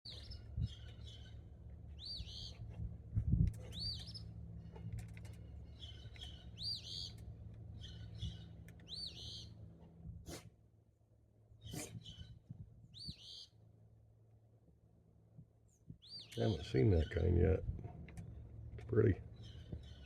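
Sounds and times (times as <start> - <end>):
songbird singing: 0.1 - 2.8, 3.6 - 4.4, 5.0 - 9.6, 11.6 - 13.6, 15.7 - 20.0.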